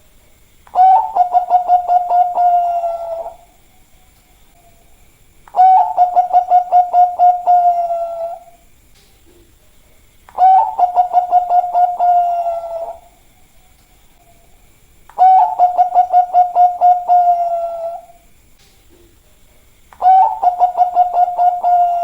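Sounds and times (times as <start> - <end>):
dove cooing: 0.7 - 3.5, 5.5 - 8.6, 10.3 - 13.2, 15.2 - 18.2, 20.0 - 22.0.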